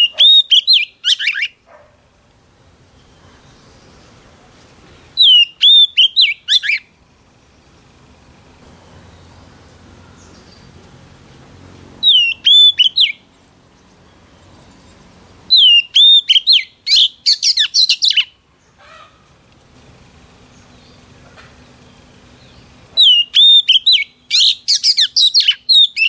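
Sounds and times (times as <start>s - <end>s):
bird singing whistled notes: 0.0s - 1.6s, 5.0s - 7.8s, 12.0s - 18.4s, 21.8s - 26.0s.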